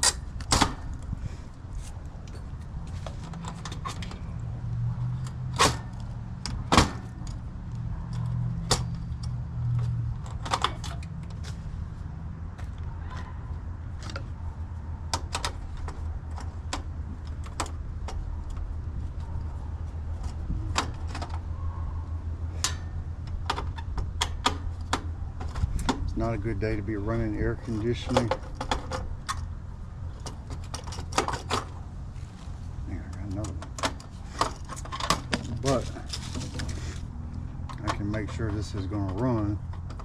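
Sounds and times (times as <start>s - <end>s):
hand tools and metal parts clinking: 1.8s - 11.6s, 22.5s - 29.5s, 30.1s - 40.0s.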